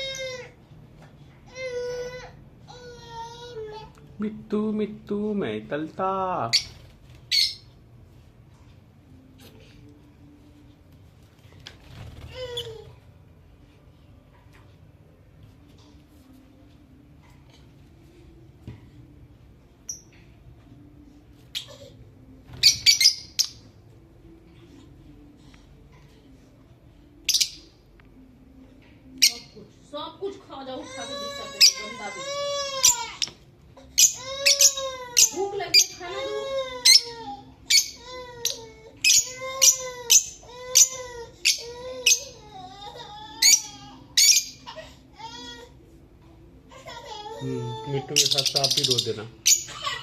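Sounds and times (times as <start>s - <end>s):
lovebirds squawking and chirping: 6.5s - 7.7s, 22.5s - 23.7s, 27.2s - 27.8s, 30.9s - 42.4s, 43.4s - 44.7s, 48.0s - 49.9s.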